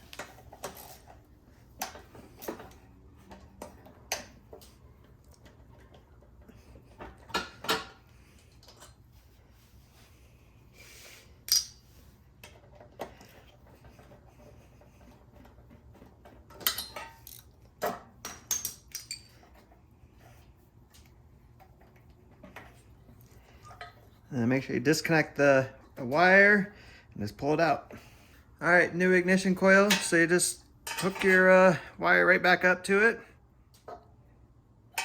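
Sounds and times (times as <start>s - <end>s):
metal tools clinking: 11.5s - 11.8s, 16.5s - 17.6s, 18.5s - 19.6s, 29.8s - 31.5s.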